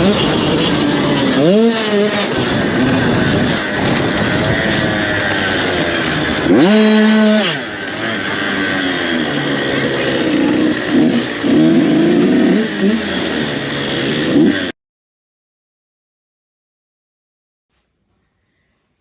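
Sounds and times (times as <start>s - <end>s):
dirt bike engines revving: 0.0s - 14.7s.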